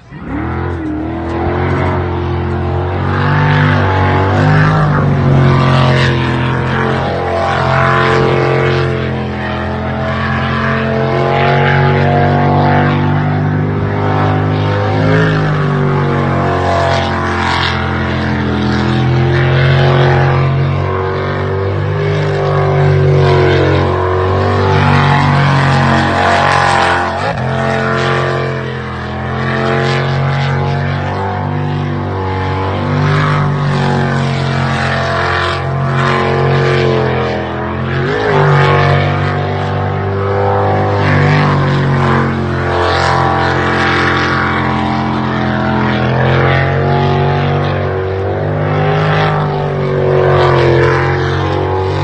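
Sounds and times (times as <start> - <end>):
boat engine revving: 0.0 - 52.0.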